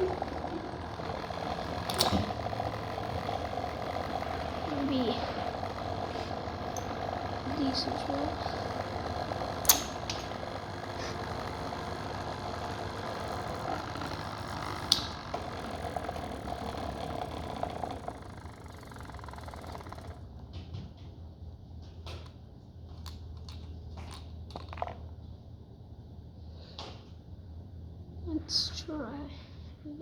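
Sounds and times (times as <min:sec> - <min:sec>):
electric motor whine: 0:00.0 - 0:20.3
parts being handled: 0:22.0 - 0:25.2.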